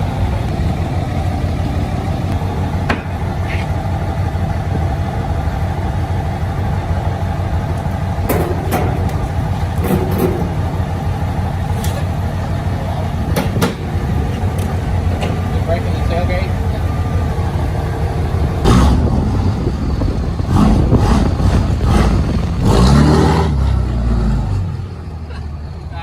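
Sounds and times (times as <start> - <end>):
truck engine and road rumble: 0.0 - 26.0
sharp knocks or rattles: 8.3 - 10.6.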